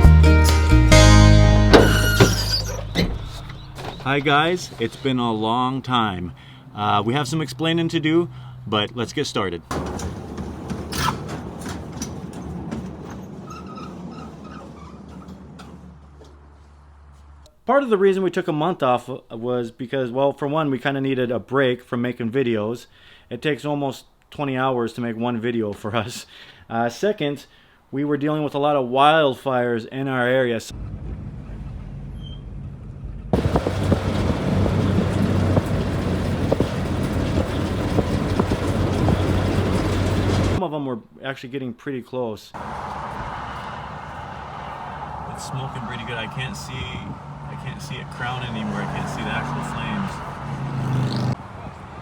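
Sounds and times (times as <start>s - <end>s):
vehicle engine running: 9.8s - 17.5s, 30.7s - 40.6s, 42.6s - 52.0s.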